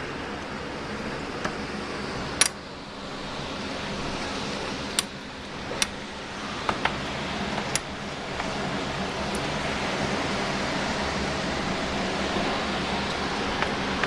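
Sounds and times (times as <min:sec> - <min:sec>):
storm wind rushing: 0:00.0 - 0:14.0.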